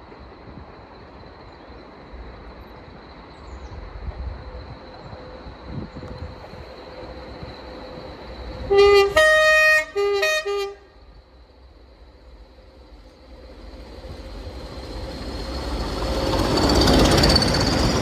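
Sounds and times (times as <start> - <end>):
train rumble: 0.0 - 18.0
two-tone locomotive horn: 8.6 - 11.0.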